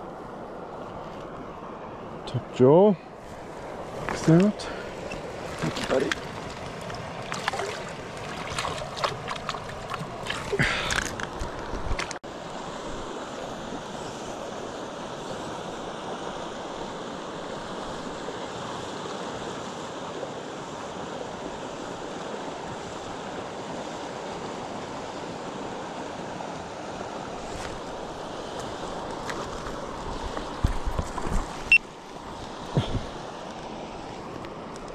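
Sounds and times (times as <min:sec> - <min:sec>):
flowing river rushing: 0:00.0 - 0:34.9
splashing in shallow water: 0:04.3 - 0:12.2.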